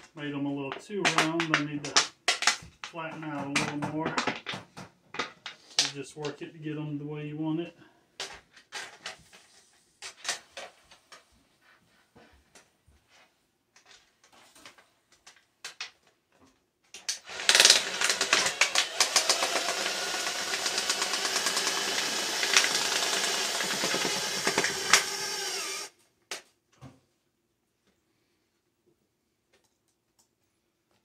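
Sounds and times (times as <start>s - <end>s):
power tool clattering: 17.2s - 25.9s.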